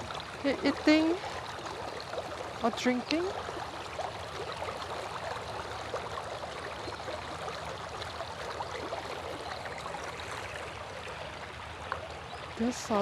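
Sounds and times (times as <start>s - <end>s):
river water babbling: 0.0s - 13.0s
small water splashes: 0.0s - 13.0s.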